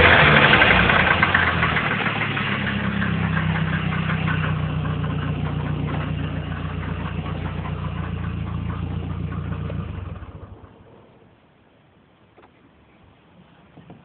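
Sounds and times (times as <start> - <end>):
engine idling with knocking: 0.0 - 11.0.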